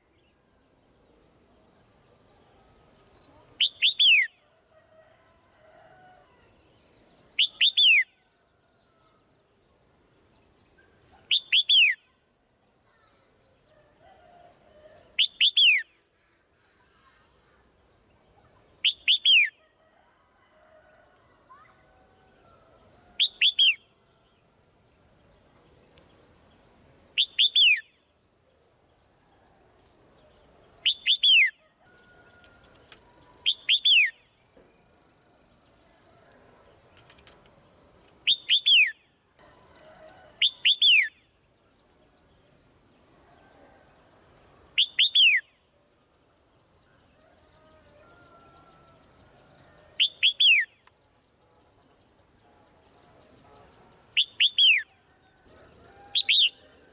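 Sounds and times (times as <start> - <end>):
bird chirping: 1.4 - 4.3, 6.6 - 8.2, 10.3 - 12.0, 18.3 - 19.6, 23.2 - 24.3, 27.2 - 28.1, 30.2 - 35.6, 38.0 - 39.2, 44.8 - 45.6, 47.6 - 55.0.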